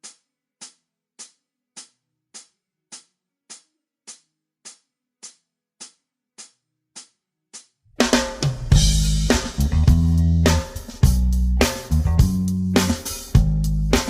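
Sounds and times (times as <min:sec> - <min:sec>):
faint low guitar notes: 0:08.7 - 0:14.0.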